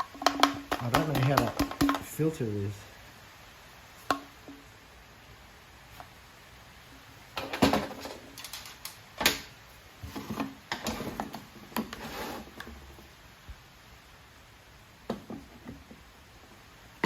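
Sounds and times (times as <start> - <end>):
hands handling small parts: 7.4 - 9.5.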